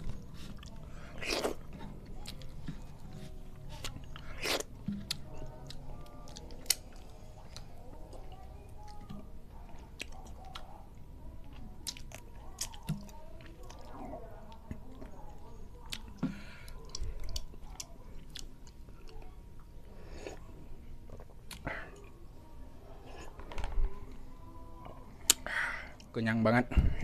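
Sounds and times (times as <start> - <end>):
person chewing and biting: 0.4 - 2.4, 3.8 - 7.6.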